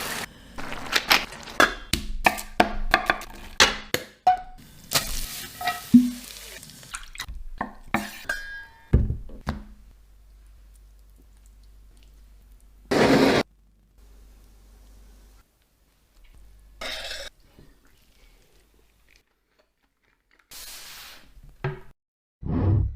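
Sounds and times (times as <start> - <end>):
utensils and cookware clinking: 4.3 - 6.3, 7.6 - 8.9.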